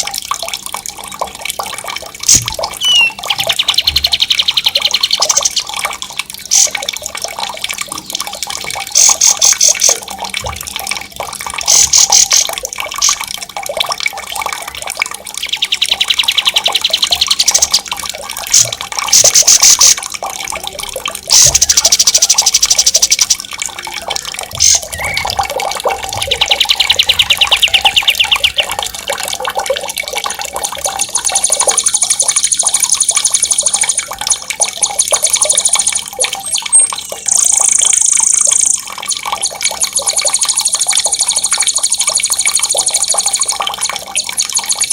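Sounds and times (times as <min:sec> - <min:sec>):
running water: 0:00.0 - 0:44.9
songbird rapid trills: 0:02.3 - 0:05.8, 0:21.3 - 0:23.4, 0:24.1 - 0:28.9.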